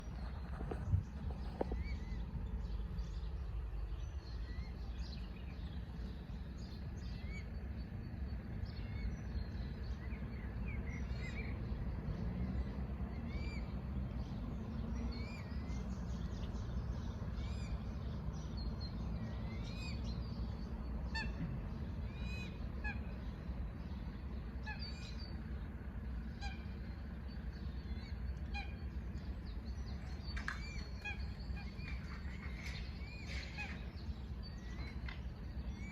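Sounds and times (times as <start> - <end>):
steady low rumble: 0.0 - 35.9
birds chirping: 13.3 - 35.9.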